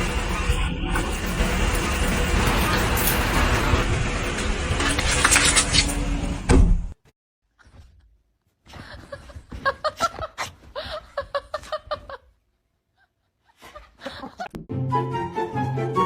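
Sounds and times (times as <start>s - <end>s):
person laughing: 8.7s - 12.4s, 13.0s - 14.6s.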